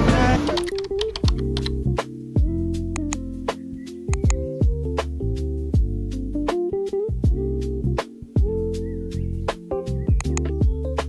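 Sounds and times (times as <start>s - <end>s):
sharp clicks: 0.0s - 1.9s
sliding bass notes: 0.0s - 2.0s
guitar-like music over a beat: 1.8s - 11.0s.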